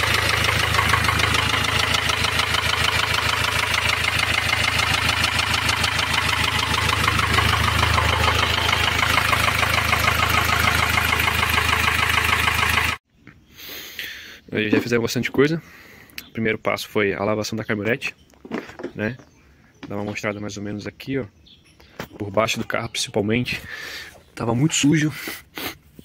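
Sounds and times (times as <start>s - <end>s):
diesel van engine idling: 0.0s - 13.0s.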